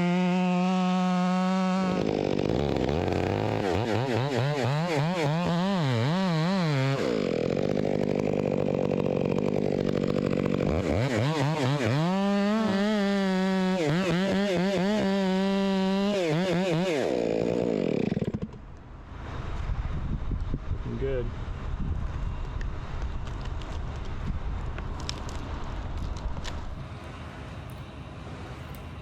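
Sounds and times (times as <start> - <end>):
chainsaw cutting wood: 0.0 - 18.8.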